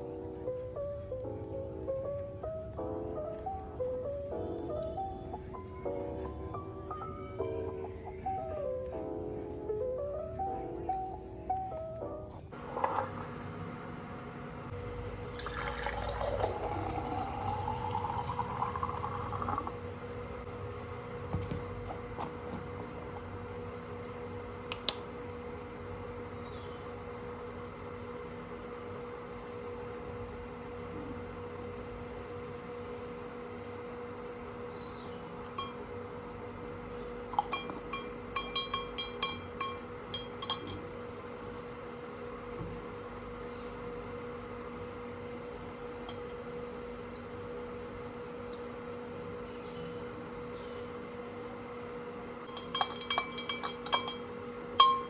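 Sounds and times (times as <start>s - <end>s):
faint steady hum: 0.0s - 55.0s
liquid pouring into container: 15.2s - 20.4s
small glass object clinking: 35.5s - 35.9s, 37.3s - 40.8s, 46.1s - 46.5s, 52.5s - 55.0s.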